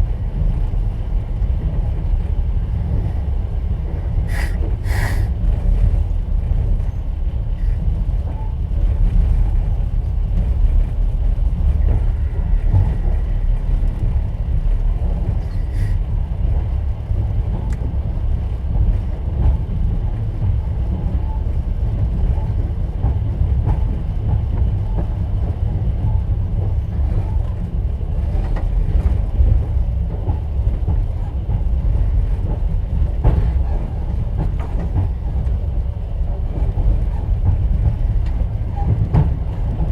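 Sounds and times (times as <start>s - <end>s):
train carriage rumble: 0.0s - 39.9s
train wheels clacking: 11.6s - 39.9s.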